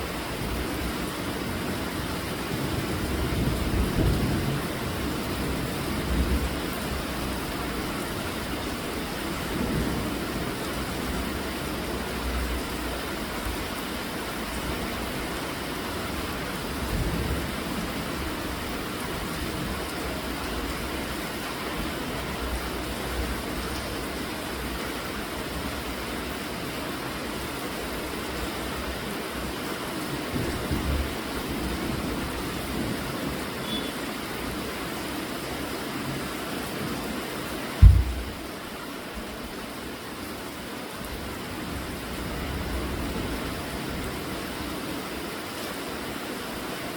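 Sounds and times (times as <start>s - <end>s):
steady rainfall: 0.0s - 46.9s
low rumbles: 37.8s - 38.5s.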